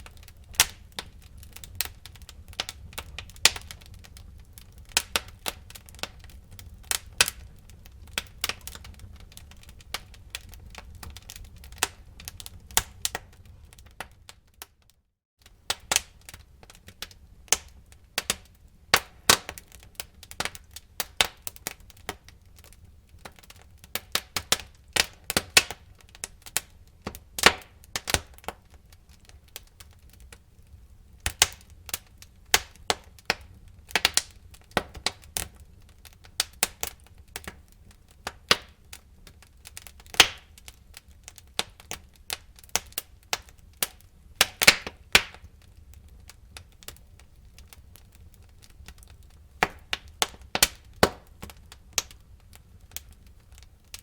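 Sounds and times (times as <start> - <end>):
low fire rumble: 0.0 - 14.7, 15.4 - 54.0
wood fire crackling: 0.0 - 54.0.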